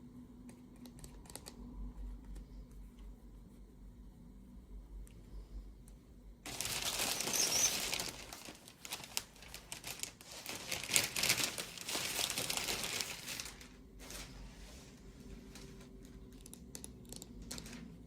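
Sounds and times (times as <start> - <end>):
packaging crinkling and tearing: 6.5 - 14.5, 15.4 - 18.0.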